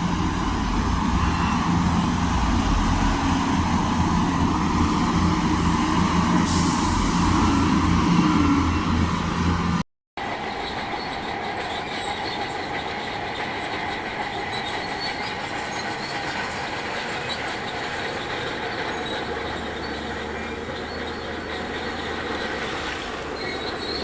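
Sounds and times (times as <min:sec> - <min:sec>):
metallic squeal of steel tracks: 0:00.0 - 0:04.0, 0:10.2 - 0:24.0.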